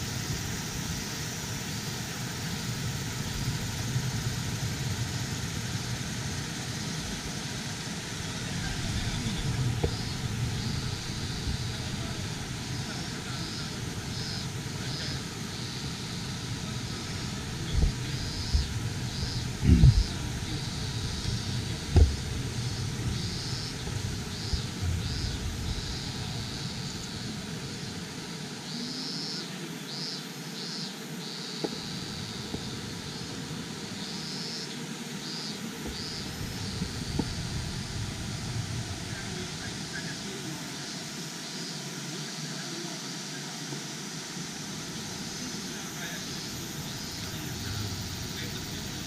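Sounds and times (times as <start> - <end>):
mountain stream rushing: 0.0 - 29.8, 31.2 - 49.0
low thumps: 17.6 - 26.6.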